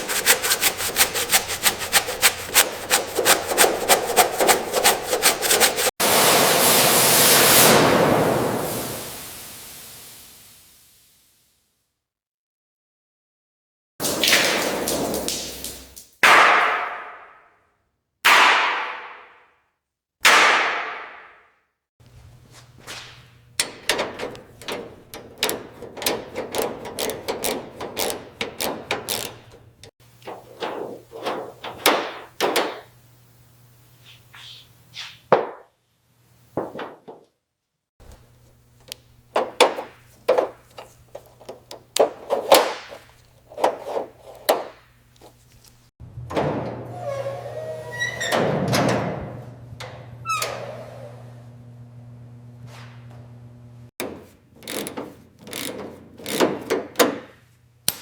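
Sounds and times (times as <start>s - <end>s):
quick knocks and clicks: 0.0s - 5.9s, 22.9s - 32.9s, 38.8s - 45.4s.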